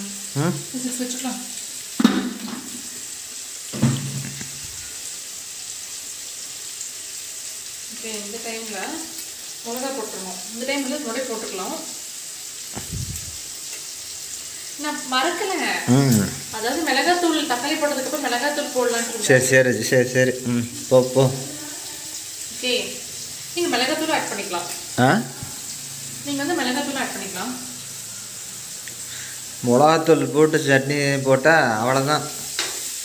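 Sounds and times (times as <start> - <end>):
onions sizzling in oil: 0.0 - 33.0
voices talking: 14.8 - 27.8.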